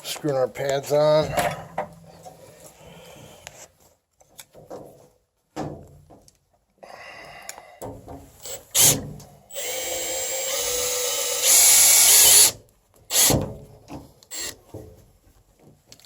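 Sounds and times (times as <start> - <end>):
power drill driving screws: 8.4 - 13.4, 14.3 - 14.6.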